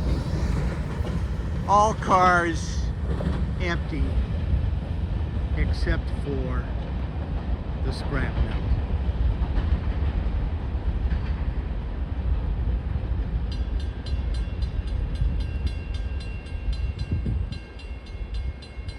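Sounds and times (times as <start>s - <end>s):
heavy rain: 0.0s - 3.1s
freight train cars rumbling: 0.0s - 18.9s.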